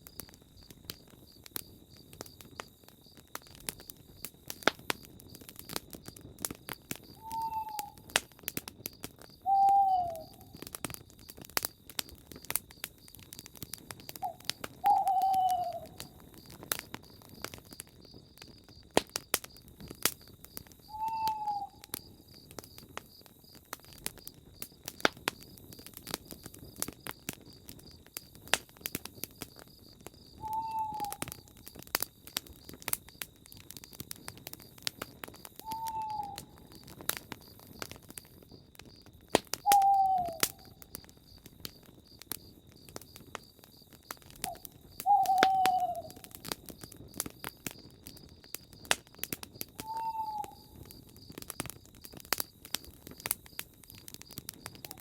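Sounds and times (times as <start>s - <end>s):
campfire crackling and popping: 0.0s - 55.0s
crickets chirping: 0.0s - 55.0s
owl hooting: 7.2s - 8.1s, 9.4s - 10.6s, 14.2s - 16.2s, 20.9s - 21.8s, 30.4s - 31.3s, 35.6s - 36.6s, 39.6s - 40.7s, 44.4s - 46.3s, 49.8s - 50.8s.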